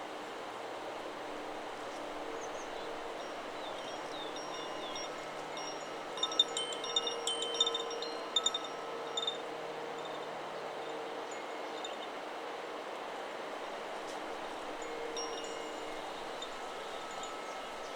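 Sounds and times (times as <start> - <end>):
wind through trees: 0.0 - 17.9
wind chime clinking: 3.1 - 10.2, 14.7 - 17.9.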